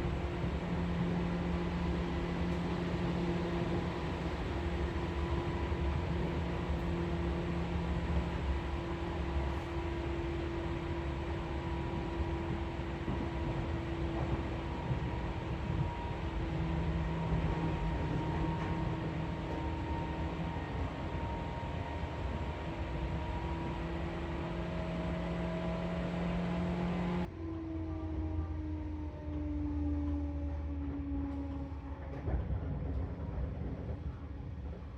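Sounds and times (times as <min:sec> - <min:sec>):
electric train running: 0:00.0 - 0:27.3
motor and gear whine: 0:00.8 - 0:27.3.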